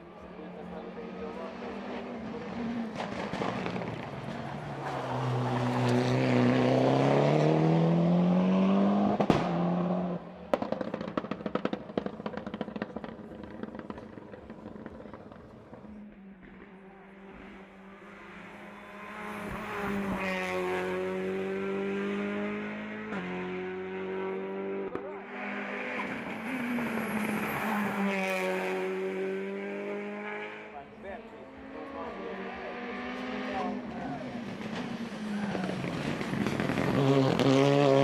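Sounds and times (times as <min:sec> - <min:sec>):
racing car engine revving: 0:00.2 - 0:38.0
exhaust pops: 0:02.4 - 0:04.4, 0:10.5 - 0:16.8, 0:34.4 - 0:37.7.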